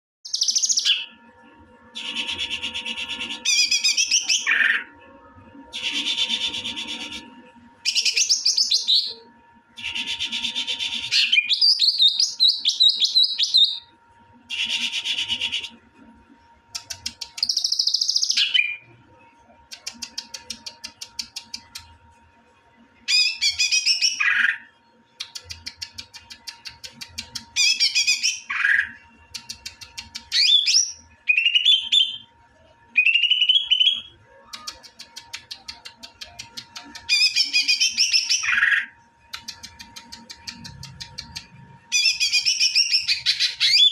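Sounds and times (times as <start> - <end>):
songbird singing trills: 7.8 - 13.9, 16.8 - 18.9, 23.1 - 32.3, 32.9 - 43.9.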